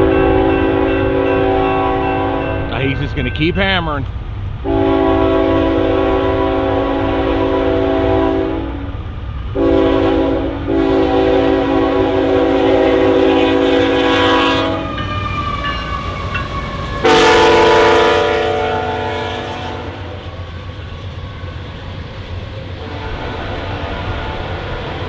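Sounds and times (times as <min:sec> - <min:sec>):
locomotive air horn blasts: 0:00.0 - 0:02.7, 0:04.6 - 0:09.0, 0:09.6 - 0:15.1, 0:17.0 - 0:20.4, 0:22.8 - 0:24.8
train rumble: 0:00.0 - 0:25.0.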